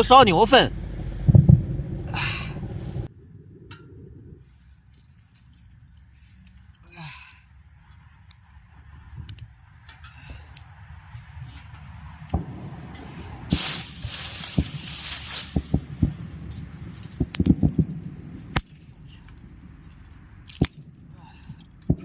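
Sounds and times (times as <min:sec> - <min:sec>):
campfire rushing hiss: 0:13.5 - 0:17.8
sticks snapping: 0:13.5 - 0:22.0.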